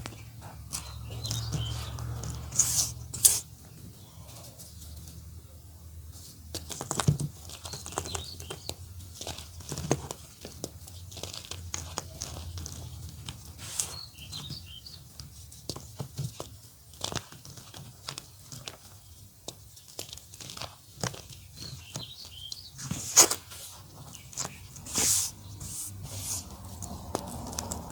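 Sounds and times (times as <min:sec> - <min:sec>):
birds chirping: 0:00.0 - 0:05.6, 0:07.4 - 0:09.0, 0:12.2 - 0:15.2, 0:21.3 - 0:23.0, 0:23.8 - 0:27.9
chalk crumbling: 0:00.8 - 0:03.5, 0:06.2 - 0:27.9.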